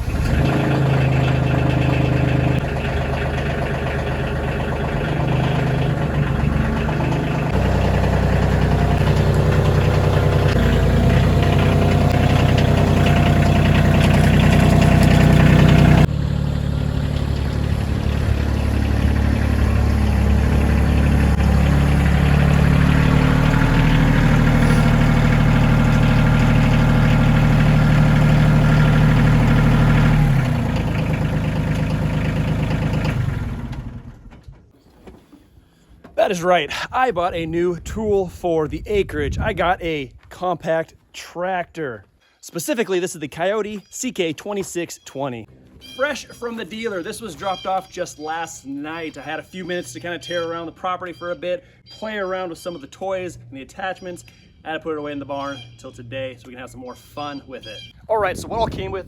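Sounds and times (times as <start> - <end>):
diesel tractor engine running: 0.0 - 40.3, 57.7 - 59.0.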